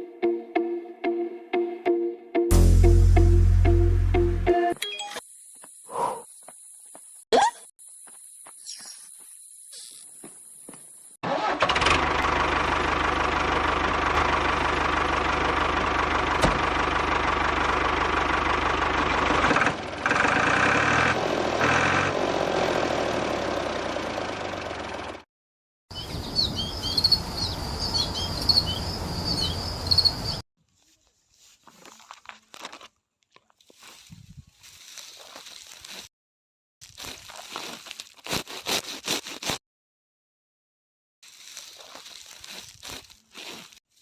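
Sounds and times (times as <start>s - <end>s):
small engine running: 11.3s - 25.2s
birds chirping: 25.9s - 30.4s.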